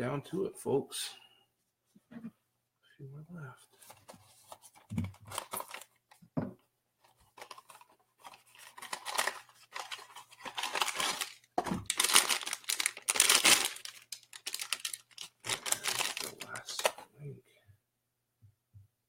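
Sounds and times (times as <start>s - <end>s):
packaging tearing and crinkling: 5.2s - 5.9s, 7.4s - 17.0s.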